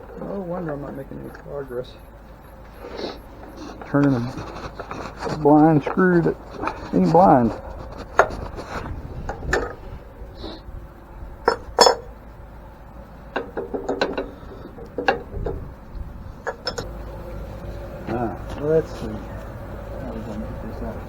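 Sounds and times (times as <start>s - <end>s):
hand tools clinking on metal: 0.0s - 1.9s, 11.5s - 12.1s, 16.4s - 16.9s.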